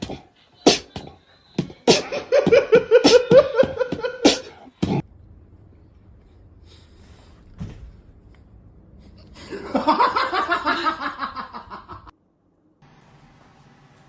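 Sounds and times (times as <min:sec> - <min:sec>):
person laughing hard: 0:01.9 - 0:04.5, 0:09.5 - 0:12.1.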